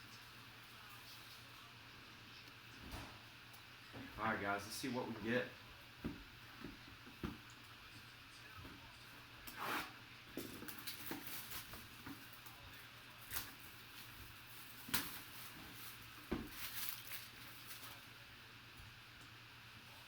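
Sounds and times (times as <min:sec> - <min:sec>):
packaging rustling: 0:13.2 - 0:18.0.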